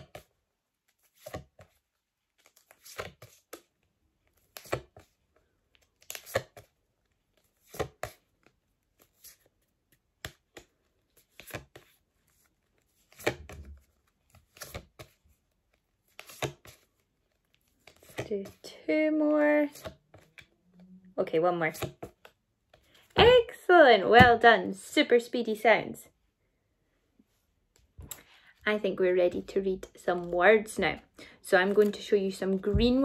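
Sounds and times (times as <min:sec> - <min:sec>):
flashcards flicked by hand: 0:16.1 - 0:16.9.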